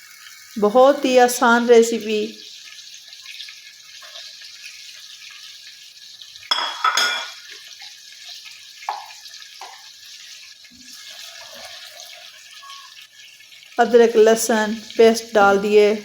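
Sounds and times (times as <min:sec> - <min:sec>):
chicken frying in oil: 0:00.0 - 0:16.0
metal utensil clattering on pan: 0:06.5 - 0:07.6.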